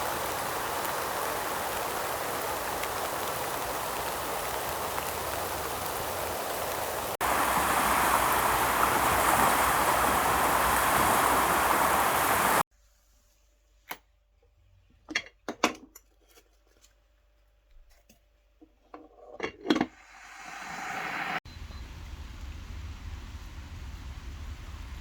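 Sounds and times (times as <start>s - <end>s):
heavy rain: 0.0s - 12.6s.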